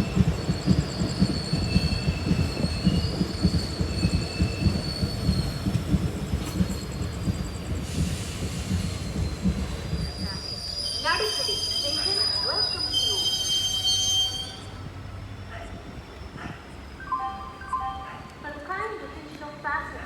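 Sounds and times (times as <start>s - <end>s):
high wheel squeals: 0.0s - 14.8s
train wheels rumbling: 0.0s - 17.0s.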